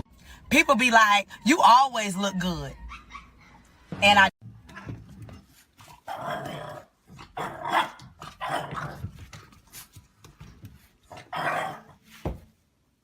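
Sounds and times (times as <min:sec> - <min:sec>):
dog barking: 0:07.4 - 0:08.8.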